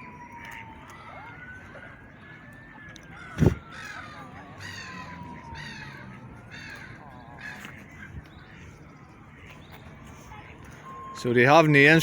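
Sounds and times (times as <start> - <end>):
birds cawing: 3.1 - 9.7.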